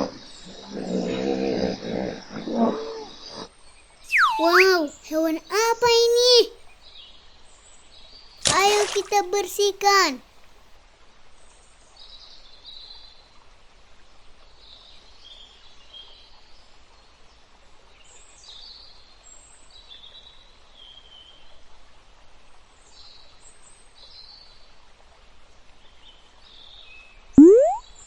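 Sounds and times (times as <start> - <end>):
small birds chirping: 4.1 - 6.5.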